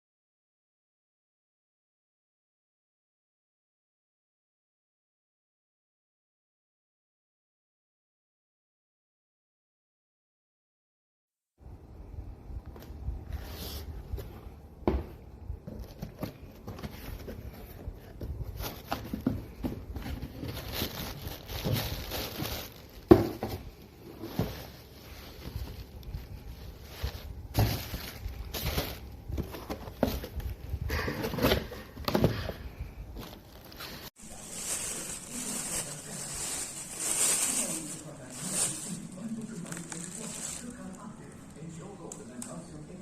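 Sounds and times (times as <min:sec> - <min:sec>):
cardboard and plastic packaging rustling: 0:15.2 - 0:41.7.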